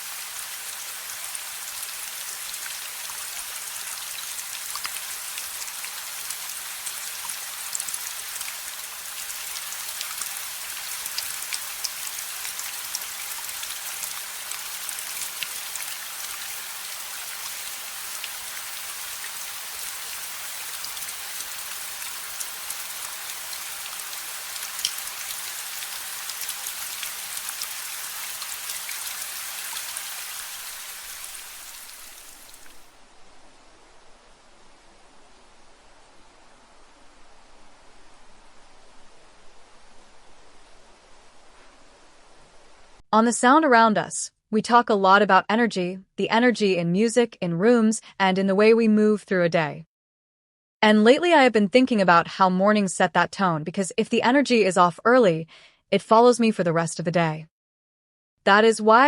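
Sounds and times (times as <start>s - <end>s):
rain on hard surfaces: 0.0s - 43.0s.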